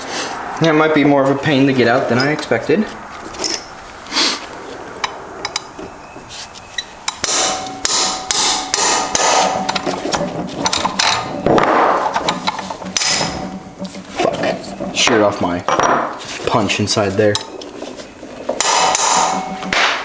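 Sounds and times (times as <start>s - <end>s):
hammer striking metal punch: 7.1s - 9.8s, 13.0s - 13.6s, 18.6s - 20.0s.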